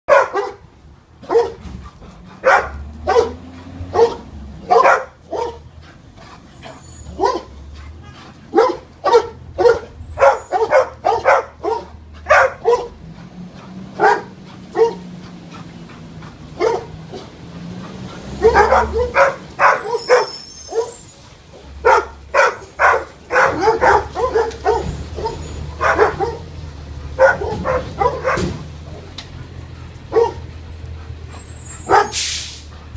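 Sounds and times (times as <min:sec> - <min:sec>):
dog barking: 0:00.1 - 0:01.6, 0:02.4 - 0:05.7, 0:07.0 - 0:07.6, 0:08.5 - 0:13.1, 0:13.9 - 0:15.2, 0:16.5 - 0:17.4, 0:18.3 - 0:21.0, 0:21.6 - 0:29.1, 0:30.1 - 0:30.5, 0:31.8 - 0:32.2.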